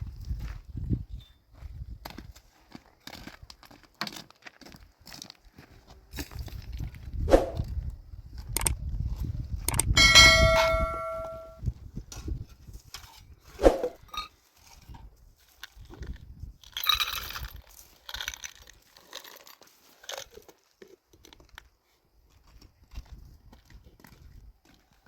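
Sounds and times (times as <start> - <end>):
objects knocking and clattering: 9.7 - 11.6
struck metal ringing: 9.9 - 11.6.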